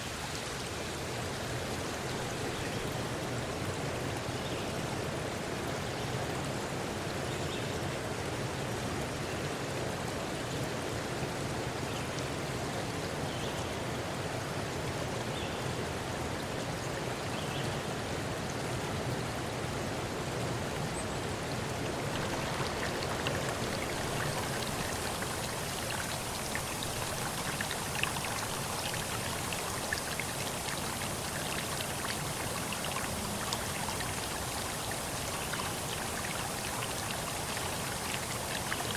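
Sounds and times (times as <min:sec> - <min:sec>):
flowing water rushing: 0:00.0 - 0:38.9
sharp drip-like ticks: 0:21.8 - 0:38.9.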